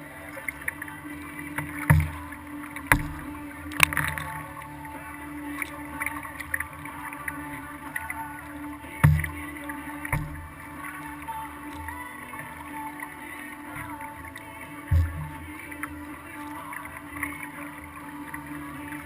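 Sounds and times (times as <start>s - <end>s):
water splashing: 0.0s - 19.0s
paddle clicks: 0.3s - 14.1s
knock against kayak hull: 10.1s - 10.4s.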